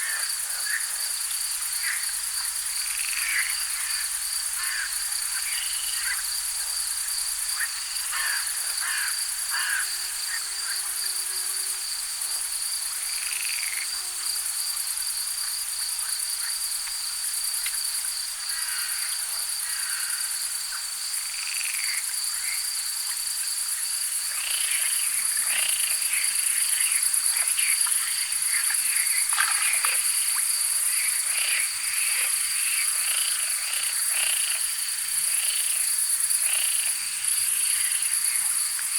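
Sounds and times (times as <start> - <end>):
frogs croaking: 0.0 - 14.0, 17.7 - 38.9
crickets trilling: 0.0 - 38.9.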